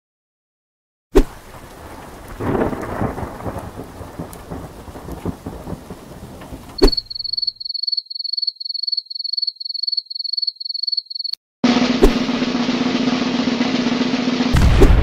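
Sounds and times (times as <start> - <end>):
steady rain: 1.2 - 6.8
thunder rumbling: 1.3 - 7.5, 12.2 - 15.0
crickets chirping: 5.8 - 11.4.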